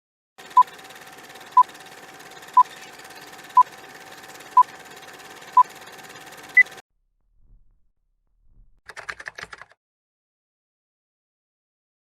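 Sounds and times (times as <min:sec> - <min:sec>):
short electronic beeps: 0:06.6 - 0:06.8.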